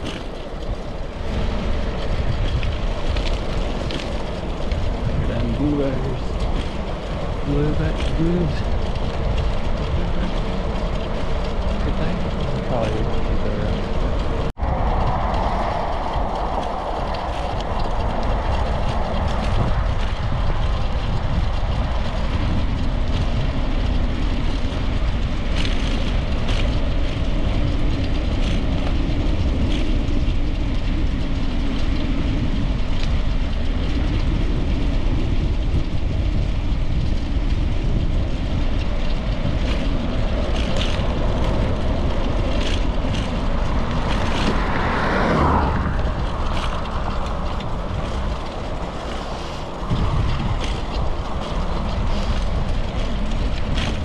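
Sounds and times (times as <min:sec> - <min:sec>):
bicycle tyre and road noise: 0:00.0 - 0:54.0
wind rumble on microphone: 0:00.0 - 0:54.0.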